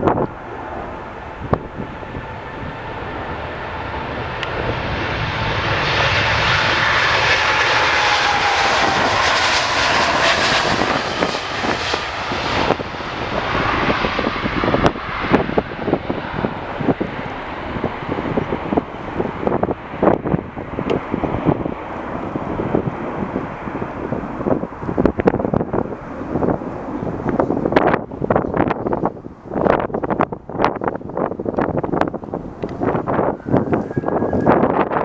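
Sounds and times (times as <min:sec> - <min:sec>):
jet airliner engine roar: 0:00.0 - 0:35.0
wind buffeting microphone: 0:00.0 - 0:35.0.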